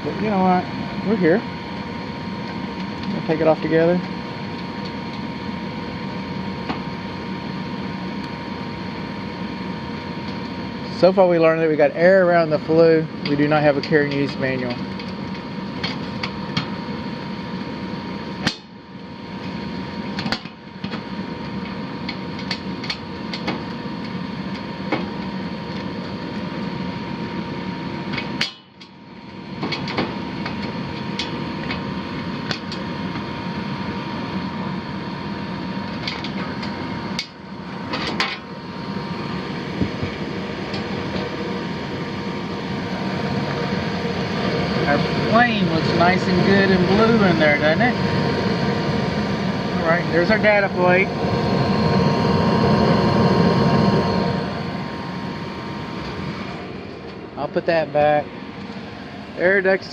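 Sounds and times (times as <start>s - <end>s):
furnace running hum: 0.0s - 59.9s.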